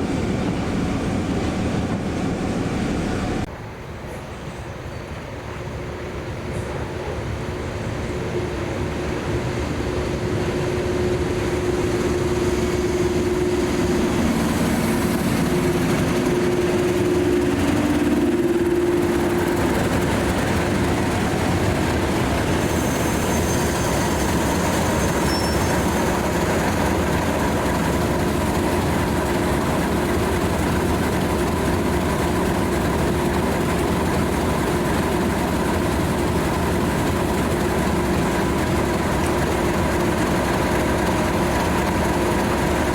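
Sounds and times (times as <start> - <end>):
diesel locomotive engine running: 0.0 - 3.7, 5.5 - 42.9.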